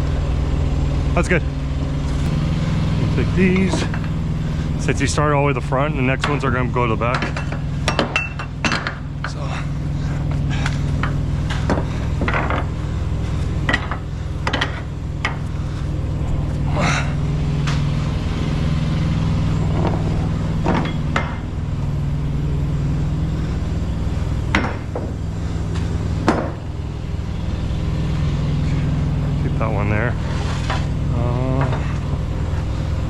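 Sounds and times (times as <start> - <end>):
engine idling: 0.0 - 33.0
sharp metallic knocks and clanks: 3.4 - 4.1, 6.0 - 9.4, 13.6 - 15.5, 19.6 - 21.5, 24.5 - 25.2.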